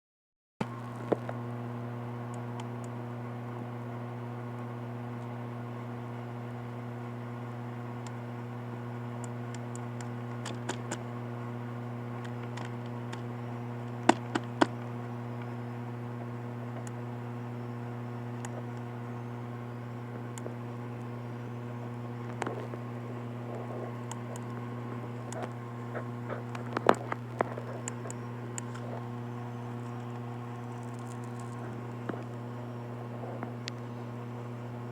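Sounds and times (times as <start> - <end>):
low electrical hum: 0.6 - 34.9
sharp clicks: 9.2 - 11.1, 13.9 - 15.5, 23.5 - 32.5.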